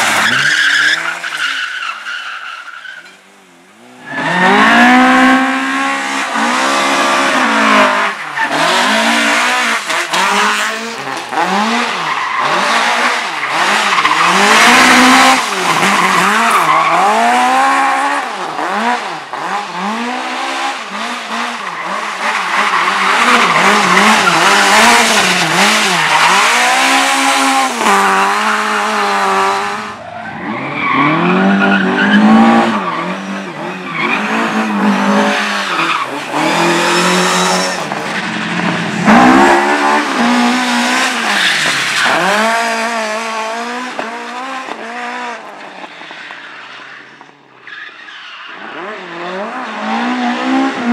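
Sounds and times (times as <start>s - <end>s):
tyres squealing: 0.1s - 3.1s
race car engine revving: 3.8s - 45.5s.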